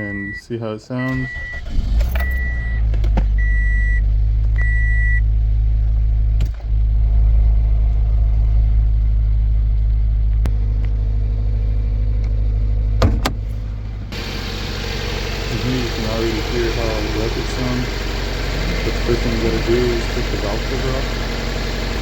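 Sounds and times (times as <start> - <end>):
car warning chime beeping: 0.0 - 4.0, 4.6 - 5.2
car engine idling roughly: 5.3 - 22.0.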